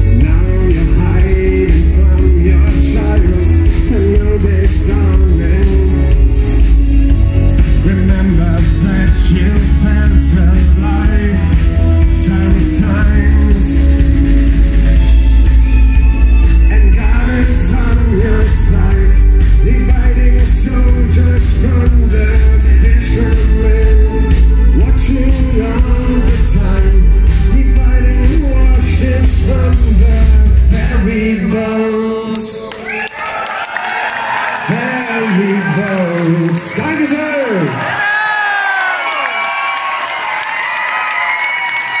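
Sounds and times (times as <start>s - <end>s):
live band playing: 0.0s - 32.1s
heavy bass: 0.0s - 32.2s
person singing: 0.0s - 32.9s.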